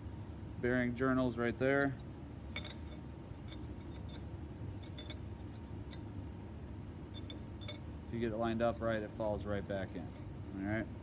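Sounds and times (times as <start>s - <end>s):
metal parts clinking: 1.8s - 6.1s, 7.2s - 11.0s.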